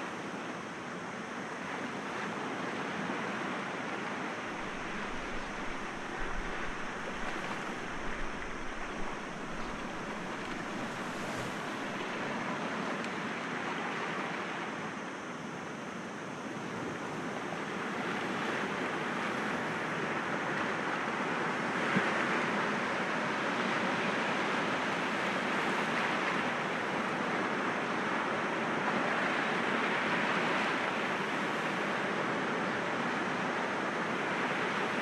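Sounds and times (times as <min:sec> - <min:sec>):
waves breaking against rocks: 0:04.5 - 0:12.2.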